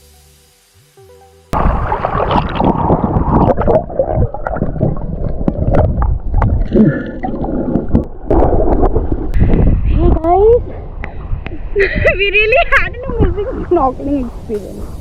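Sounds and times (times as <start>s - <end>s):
seawater sloshing and splashing: 1.6s - 9.4s.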